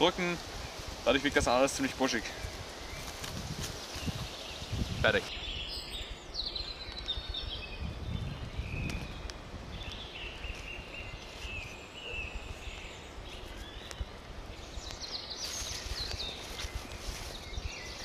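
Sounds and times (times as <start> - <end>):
steady background hiss: 0.0 - 18.0
small bird chirping and trilling: 2.2 - 18.0.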